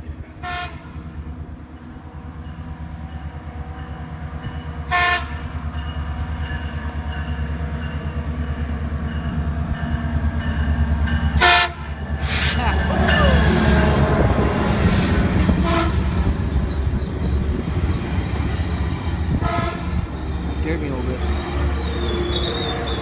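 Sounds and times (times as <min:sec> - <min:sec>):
diesel train engine rumble: 0:00.0 - 0:23.0
train horn blasts: 0:00.4 - 0:00.9, 0:04.9 - 0:05.4, 0:11.4 - 0:11.9, 0:12.9 - 0:16.4, 0:19.3 - 0:20.1.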